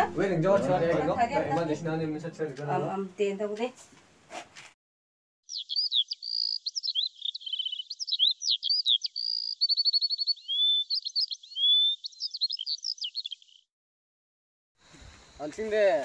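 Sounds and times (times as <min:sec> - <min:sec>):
songbird singing: 0:05.4 - 0:13.7.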